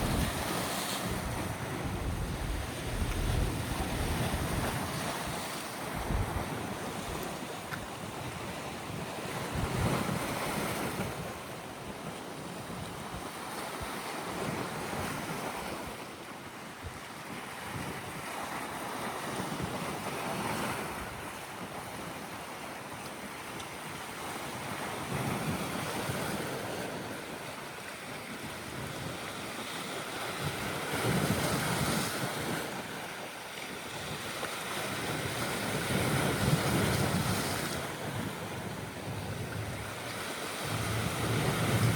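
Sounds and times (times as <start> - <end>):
sea waves washing in: 0.0 - 6.4
wind buffeting microphone: 0.0 - 7.3.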